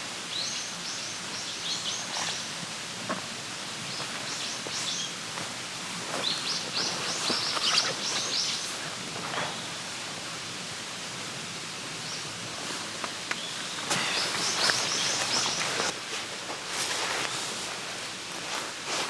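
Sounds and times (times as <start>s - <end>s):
steady outdoor hiss: 0.0s - 19.0s
small birds chirping: 6.2s - 8.8s, 13.3s - 15.9s.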